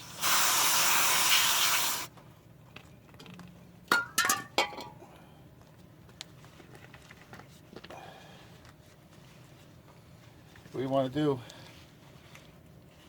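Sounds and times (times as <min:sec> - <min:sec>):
aerosol spray hiss: 0:00.0 - 0:02.1.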